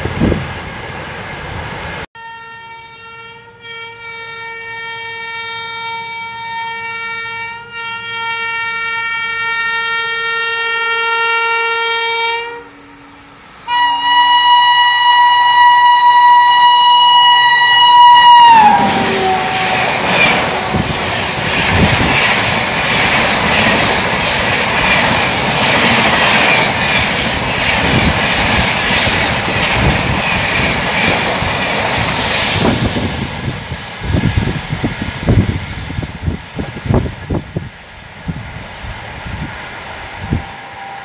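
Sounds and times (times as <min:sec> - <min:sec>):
train rushing past: 0:00.0 - 0:02.1, 0:11.7 - 0:41.0
locomotive horn: 0:02.2 - 0:21.9, 0:40.3 - 0:41.0.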